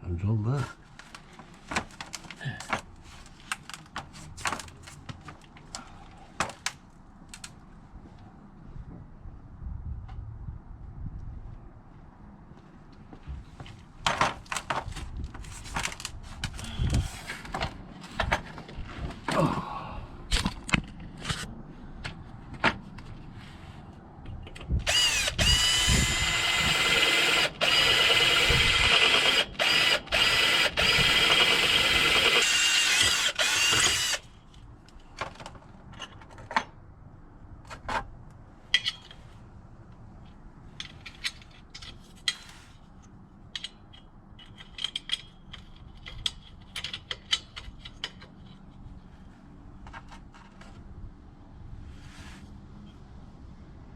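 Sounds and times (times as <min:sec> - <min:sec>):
power drill whining: 0:24.9 - 0:34.2
clicks of tools being handled: 0:38.7 - 0:39.2, 0:40.8 - 0:48.8.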